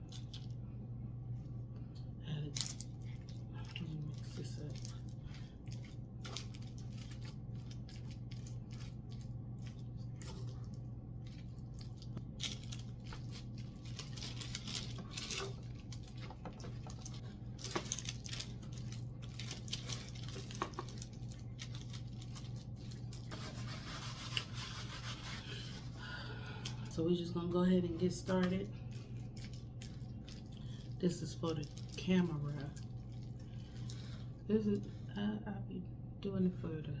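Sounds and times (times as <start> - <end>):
steady low hum: 0.0 - 37.0
wet squishing: 2.6 - 26.9, 28.0 - 35.2
utensil scraping a container: 23.3 - 25.9.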